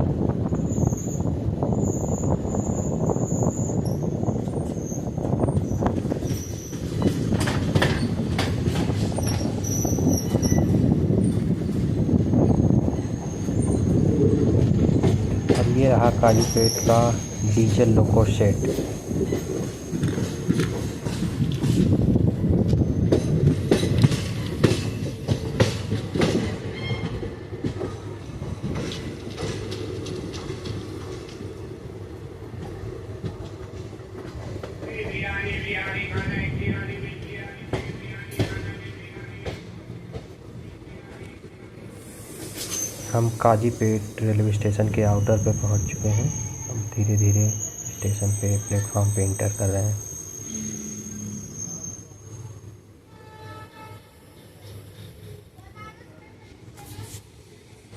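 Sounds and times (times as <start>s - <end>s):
train rumbling on track: 0.0s - 57.9s
wheel squeals: 1.8s - 8.2s, 9.2s - 10.8s, 15.5s - 18.0s, 42.4s - 43.4s, 45.0s - 52.8s
train wheels clattering over joints: 4.4s - 31.6s.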